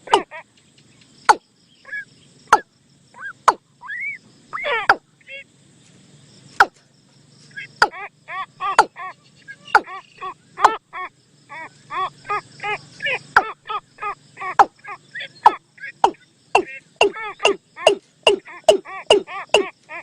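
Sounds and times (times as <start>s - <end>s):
sharp downward sweeping bird calls: 0.0s - 5.4s, 7.5s - 20.0s
short arched bird calls: 0.0s - 5.5s, 7.4s - 20.0s.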